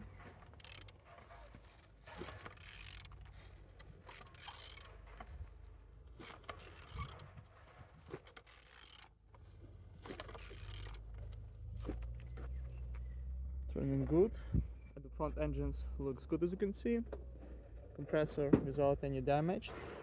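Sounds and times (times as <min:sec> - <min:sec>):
engine turned by hand clicking: 0:00.0 - 0:13.0.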